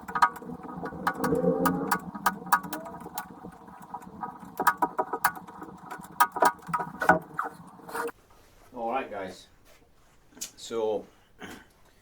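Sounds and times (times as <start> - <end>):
clattering rattle: 0.0 - 8.1.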